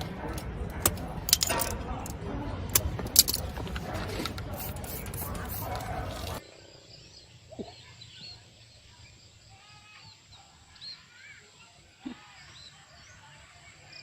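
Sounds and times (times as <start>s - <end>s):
small birds chirping: 4.5s - 14.0s.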